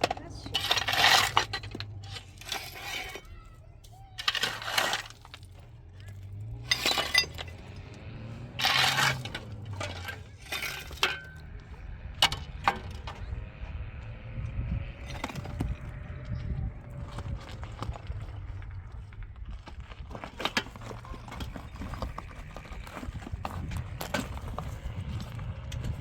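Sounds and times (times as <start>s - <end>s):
low steady rumble: 0.0s - 26.0s
short knocks and clinks: 6.2s - 11.5s.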